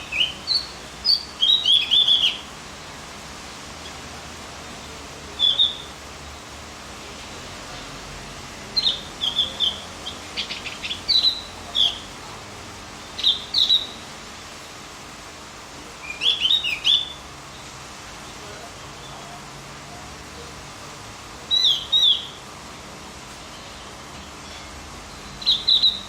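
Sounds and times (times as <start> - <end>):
bird rattling trill: 0.0 - 2.4
bird chirping: 0.0 - 2.5, 5.4 - 5.9, 8.8 - 12.1, 13.2 - 14.0, 16.0 - 17.2, 21.5 - 22.4, 24.4 - 26.0
faint steady hiss: 0.0 - 26.0.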